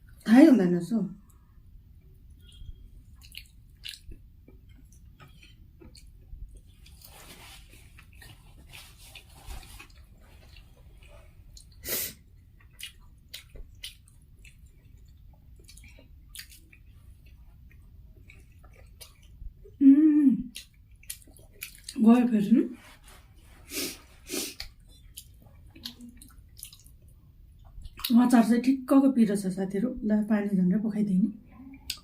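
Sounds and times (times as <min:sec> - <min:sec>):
chewing with mouth smacks: 0:02.0 - 0:19.8, 0:20.4 - 0:22.0, 0:24.5 - 0:28.2, 0:31.7 - 0:32.0.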